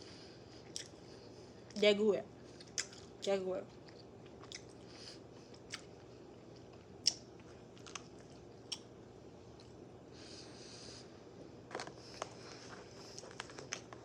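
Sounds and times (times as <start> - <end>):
chewing food: 0.5 - 1.8, 2.5 - 8.9
wet mouth clicks and smacks: 7.0 - 7.2.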